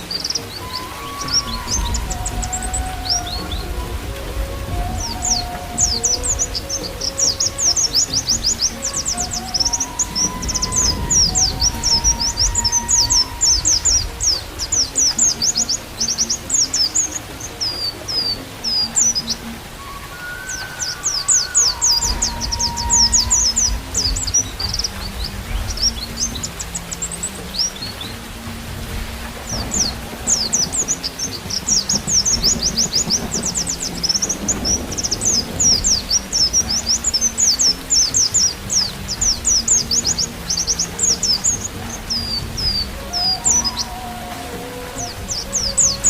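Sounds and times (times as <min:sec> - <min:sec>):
bird chirping rapidly: 0:00.0 - 0:28.2
held flute notes: 0:00.0 - 0:46.0
rain hiss: 0:00.0 - 0:46.0
soft low musical drone: 0:00.0 - 0:46.0.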